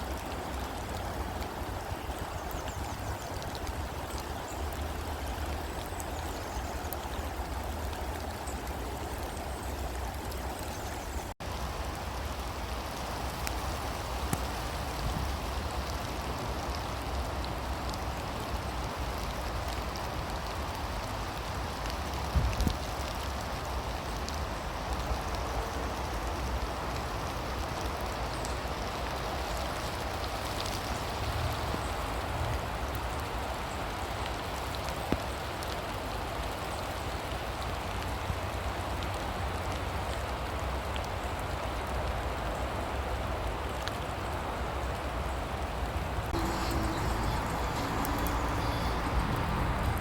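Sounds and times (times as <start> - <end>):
heavy rain hissing: 0.0 - 34.7, 46.0 - 50.0
sharp raindrop taps: 12.9 - 42.4, 46.3 - 50.0.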